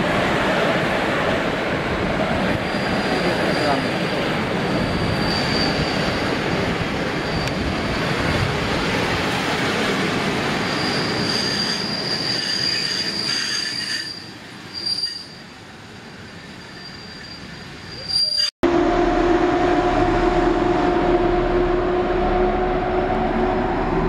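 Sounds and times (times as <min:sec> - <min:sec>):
thin high wheel squeal: 0:04.7 - 0:06.3, 0:10.6 - 0:15.5, 0:16.2 - 0:18.5.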